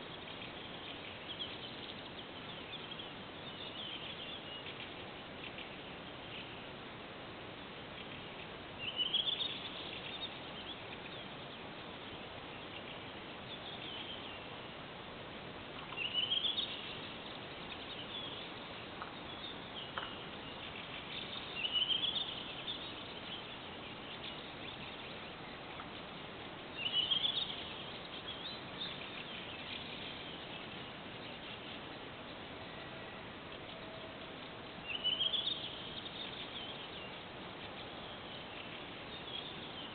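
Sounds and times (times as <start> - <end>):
steady background hiss: 0.0 - 39.9
songbird singing rising phrase: 15.8 - 39.9.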